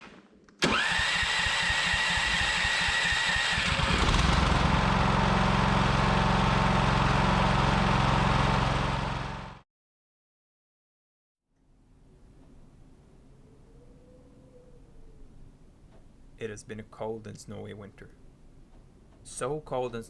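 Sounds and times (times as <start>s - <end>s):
electric starter whining: 0.6s - 9.6s
small engine running: 0.6s - 9.6s.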